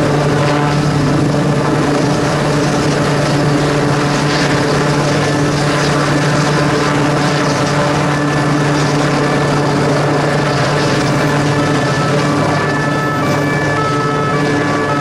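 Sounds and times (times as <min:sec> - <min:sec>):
helicopter hovering overhead: 0:00.0 - 0:15.0.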